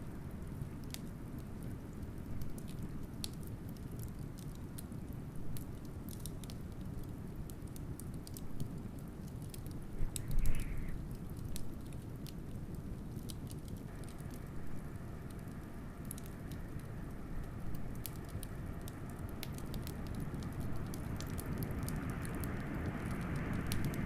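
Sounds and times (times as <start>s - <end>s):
wood fire crackling and popping: 0.0s - 24.0s
blizzard wind rumble: 9.6s - 12.0s, 13.9s - 24.0s.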